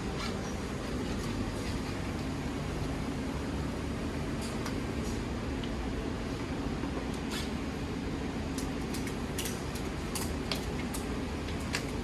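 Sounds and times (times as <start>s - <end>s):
ventilation fan hum: 0.0s - 12.0s.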